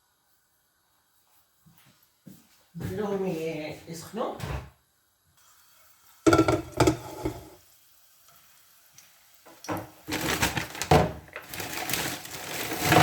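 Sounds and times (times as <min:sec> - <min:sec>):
garlic sizzling in hot oil: 0:05.4 - 0:10.1.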